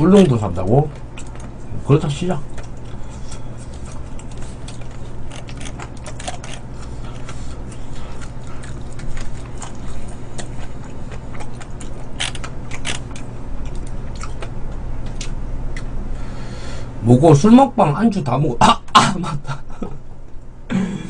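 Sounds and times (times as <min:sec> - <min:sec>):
steady low hum: 0:00.0 - 0:21.0
person chewing crunchy food: 0:00.2 - 0:01.7, 0:02.4 - 0:15.9.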